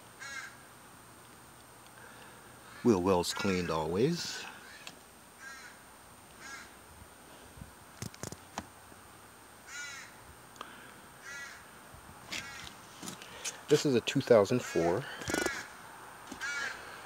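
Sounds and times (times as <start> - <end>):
crow cawing: 0.2 - 0.7, 2.6 - 3.8, 4.6 - 5.8, 6.4 - 6.8, 9.6 - 11.7, 12.3 - 13.4, 14.6 - 17.0
sharp clicks: 8.0 - 8.4.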